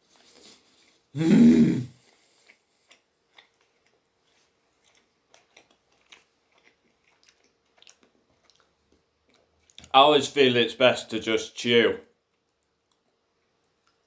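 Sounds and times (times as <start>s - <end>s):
person chewing: 0.0s - 9.9s.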